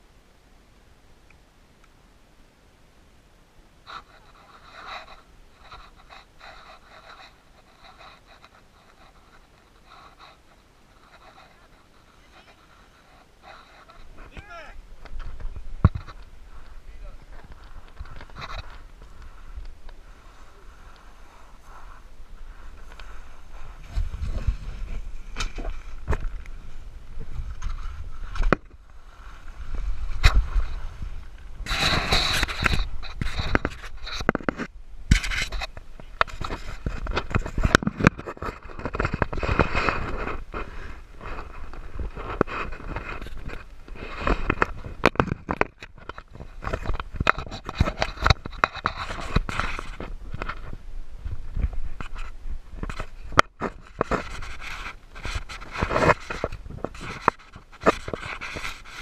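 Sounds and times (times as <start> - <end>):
wind rumbling on microphone: 3.8 - 59.0
board scraping down gravel: 3.9 - 50.6.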